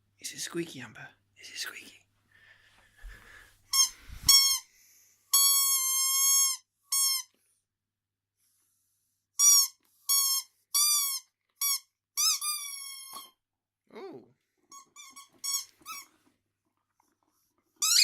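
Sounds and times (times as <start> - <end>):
dog toy squeaking: 3.7 - 4.6, 5.3 - 7.3, 9.4 - 13.4, 14.7 - 16.1, 17.8 - 18.0.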